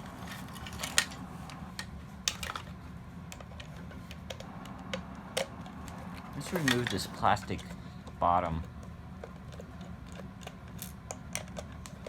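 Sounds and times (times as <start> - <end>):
steady low hum: 0.0 - 12.0
plastic parts clicking: 0.3 - 8.8.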